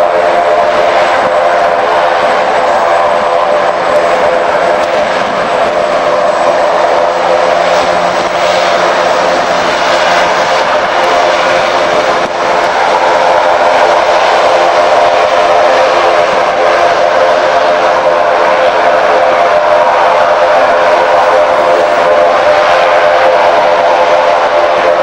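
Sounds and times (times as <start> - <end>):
aircraft engines running: 0.0 - 25.0.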